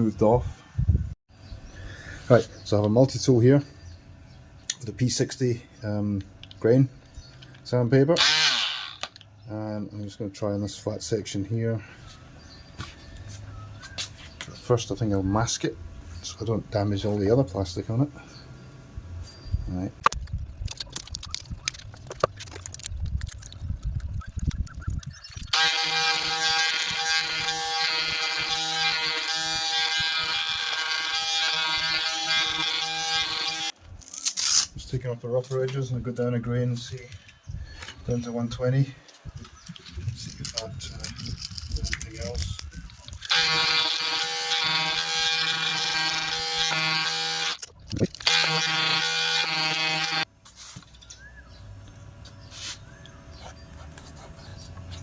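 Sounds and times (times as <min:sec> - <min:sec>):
multi-tool sanding buzz: 0:08.2 - 0:09.2, 0:25.5 - 0:33.8, 0:43.0 - 0:47.6, 0:48.2 - 0:50.3.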